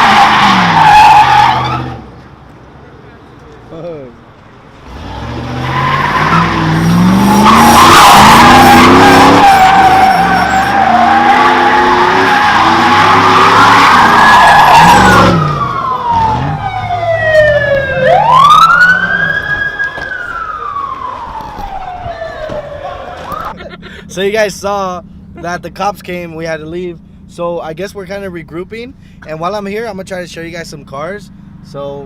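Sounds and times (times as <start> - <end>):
car engine revving: 4.4 - 28.8
tyres squealing: 4.8 - 15.7
police siren wailing: 5.6 - 23.6.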